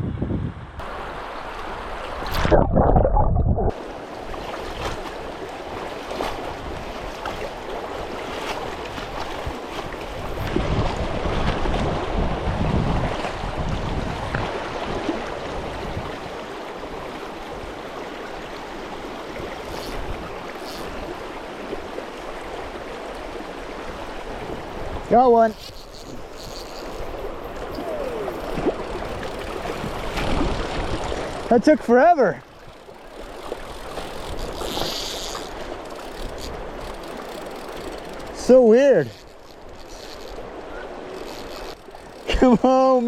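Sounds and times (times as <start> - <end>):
river current rushing: 0.8 - 2.7, 3.7 - 43.0
low rumble on microphone: 2.3 - 3.8.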